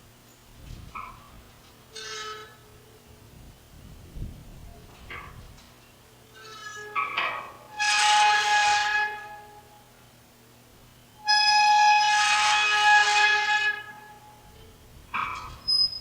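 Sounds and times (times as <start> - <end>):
windmill metal squealing: 1.9 - 3.0, 6.3 - 9.7, 11.1 - 16.0.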